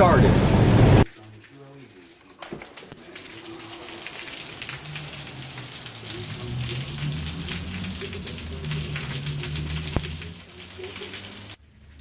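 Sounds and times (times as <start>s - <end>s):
rain on hard surface: 0.0s - 12.0s.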